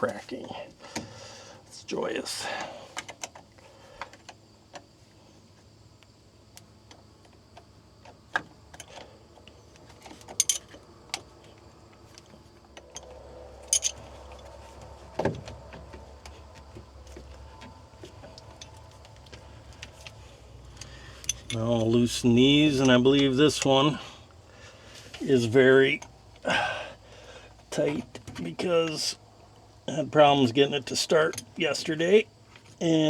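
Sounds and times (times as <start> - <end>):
faint low hum: 0.0 - 33.0
wrench clinking on metal clamp: 10.3 - 10.7, 13.7 - 14.1, 20.8 - 21.9.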